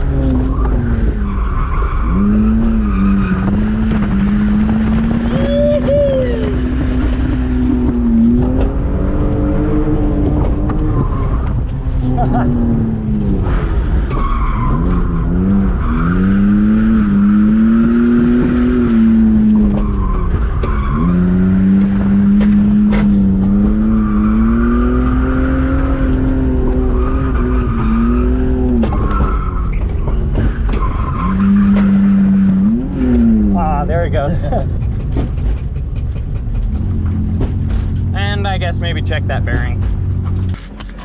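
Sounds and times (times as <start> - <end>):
car engine revving high: 0.0 - 29.6, 30.3 - 35.3.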